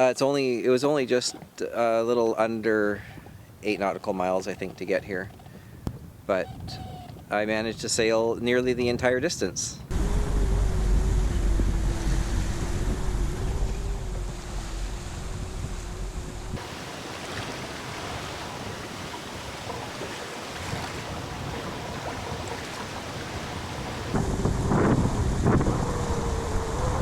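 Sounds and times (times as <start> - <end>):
wind buffeting microphone: 3.0 - 27.0
steady hum: 9.9 - 17.7
water rushing past boat: 9.9 - 27.0.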